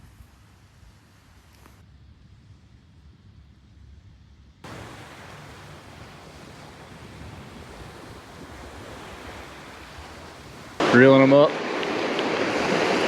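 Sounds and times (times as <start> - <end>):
wind on microphone: 0.0 - 13.0
ocean surf on beach: 4.6 - 13.0.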